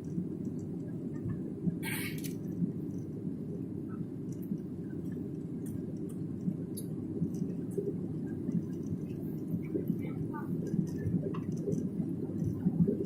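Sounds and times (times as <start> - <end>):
faint clicks and rattles: 0.0 - 3.2, 3.9 - 13.0
airliner cabin engine rumble: 0.0 - 13.0.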